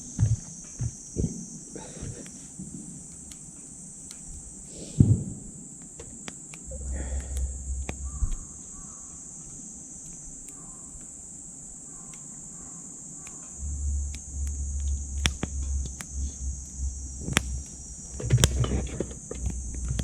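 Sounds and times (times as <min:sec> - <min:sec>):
wood fire crackling: 0:00.0 - 0:12.6, 0:13.2 - 0:20.0
insects chirring: 0:00.0 - 0:20.0
low rumble: 0:06.7 - 0:09.4, 0:13.6 - 0:20.0.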